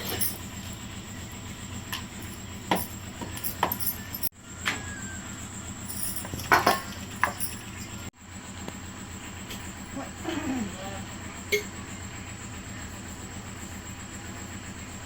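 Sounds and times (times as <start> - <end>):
kitchen utensils clinking: 0.0 - 0.7, 6.0 - 8.0.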